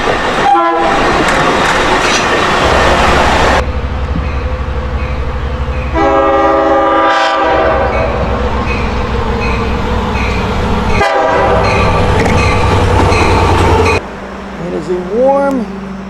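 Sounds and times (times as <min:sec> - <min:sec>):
train rumbling past: 0:00.0 - 0:16.0
train wheels clicking on rails: 0:00.0 - 0:16.0
train horn: 0:00.4 - 0:01.1, 0:05.8 - 0:12.1.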